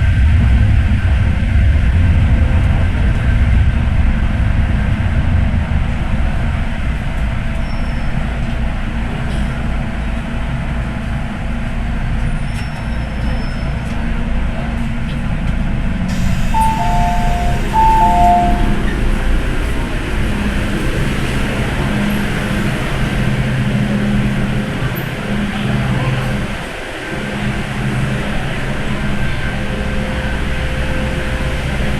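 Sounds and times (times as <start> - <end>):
train rumbling: 0.0 - 31.9
two-note electronic chime: 16.5 - 18.9.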